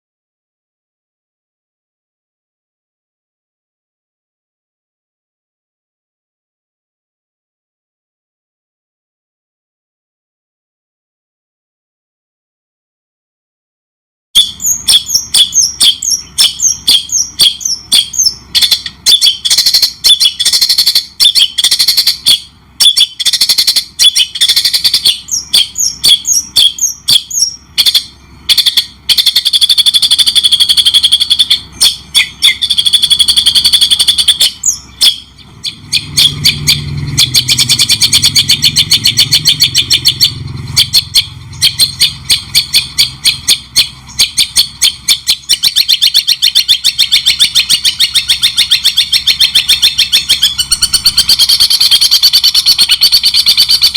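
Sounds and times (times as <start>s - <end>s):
low hum: 14.4s - 53.9s
songbird singing: 14.4s - 53.9s.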